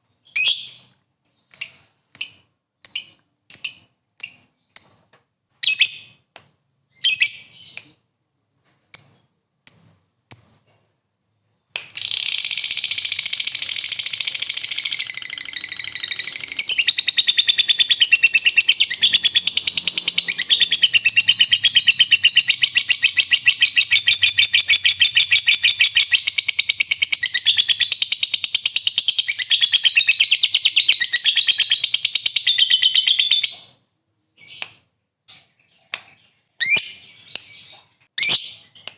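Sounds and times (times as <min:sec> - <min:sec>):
bird chirping: 0:00.0 - 0:08.1, 0:08.9 - 0:10.8, 0:11.4 - 0:38.9
bird chattering trill: 0:11.9 - 0:33.5.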